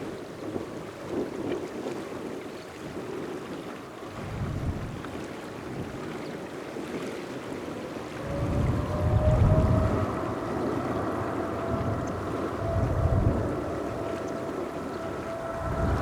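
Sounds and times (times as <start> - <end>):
wind buffeting microphone: 0.0 - 16.0
distant jet engine rush: 7.4 - 16.0
engine whine: 7.6 - 16.0.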